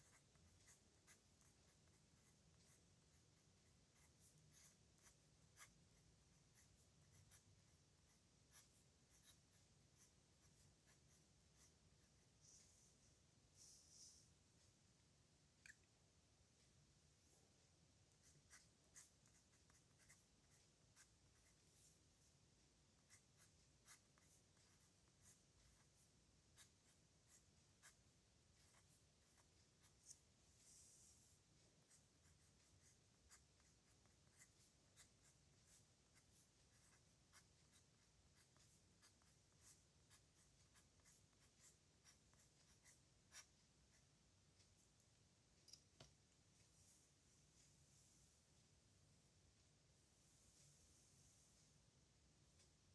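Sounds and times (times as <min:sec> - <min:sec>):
pen scratching on paper: 0:00.0 - 0:12.4, 0:18.2 - 0:22.0, 0:23.0 - 0:44.0.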